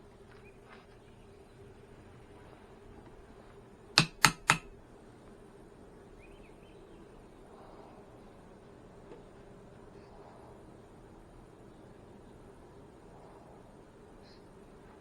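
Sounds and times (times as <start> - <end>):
faint steady hum: 0.0 - 15.0
sharp clicks: 4.0 - 4.7.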